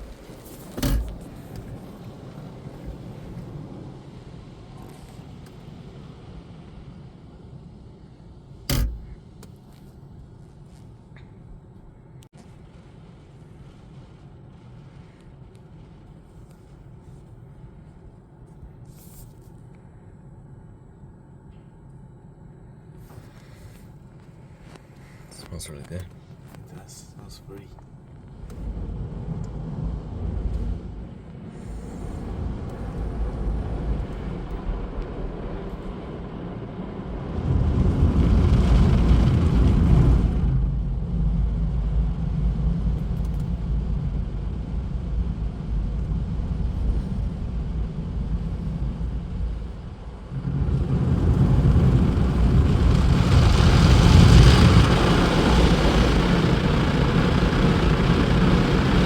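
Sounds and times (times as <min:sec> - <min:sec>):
car wash equipment rumble: 0:00.0 - 0:20.1, 0:21.2 - 0:59.0.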